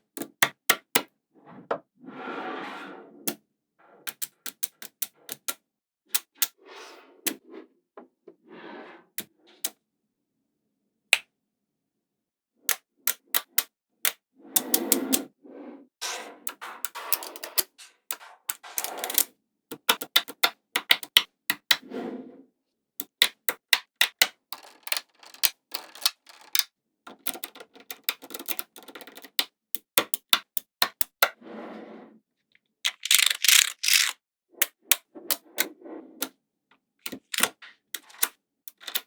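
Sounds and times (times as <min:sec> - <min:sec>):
magnetic balls rattling and sliding: 0:16.0 - 0:19.2, 0:24.5 - 0:26.6, 0:32.9 - 0:34.2, 0:37.1 - 0:39.0
magnetic balls clicking together: 0:18.5 - 0:21.8, 0:23.0 - 0:31.2, 0:32.9 - 0:34.8, 0:37.1 - 0:39.0.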